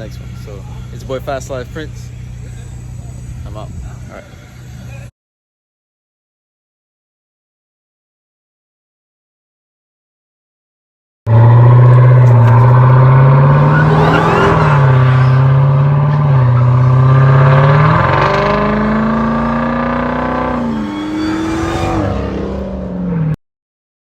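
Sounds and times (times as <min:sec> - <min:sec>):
car engine accelerating hard: 0:11.3 - 0:23.4.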